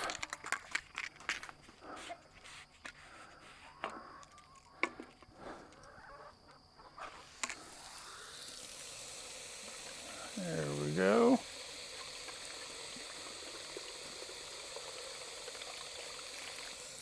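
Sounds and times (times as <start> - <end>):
water pouring into bottle: 7.3 - 17.0.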